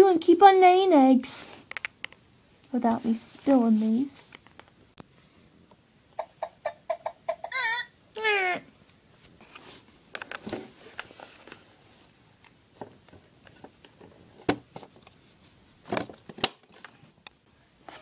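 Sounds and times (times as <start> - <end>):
voice falling in pitch: 7.5 - 8.7.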